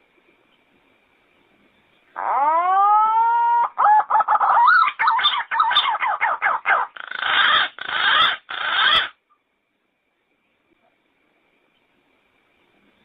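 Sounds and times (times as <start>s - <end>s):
pigeon calling: 2.2s - 9.2s.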